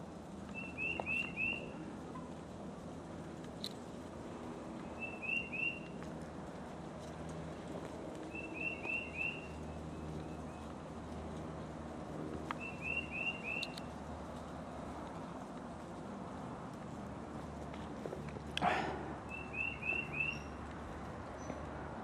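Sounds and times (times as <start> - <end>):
low background noise: 0.0 - 22.0
songbird whistling: 0.5 - 1.8, 4.9 - 5.9, 8.3 - 9.6, 12.6 - 13.9, 19.3 - 20.6.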